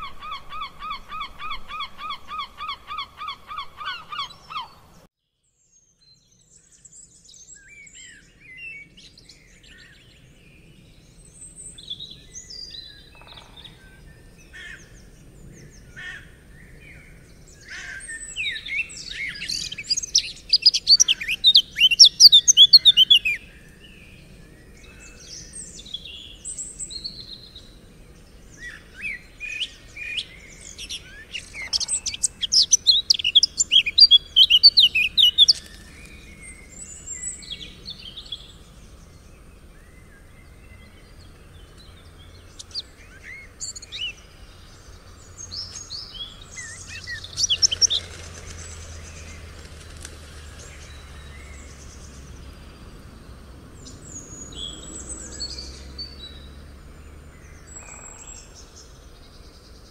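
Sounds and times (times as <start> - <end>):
songbirds chirping and singing: 0.0 - 5.1, 5.9 - 59.9
rapid twittering song: 16.6 - 59.9.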